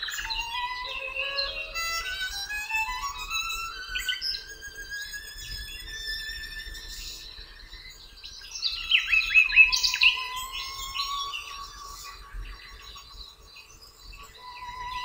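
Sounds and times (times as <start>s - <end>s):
bird chirping: 0.0s - 15.0s
soft background music: 0.1s - 5.2s.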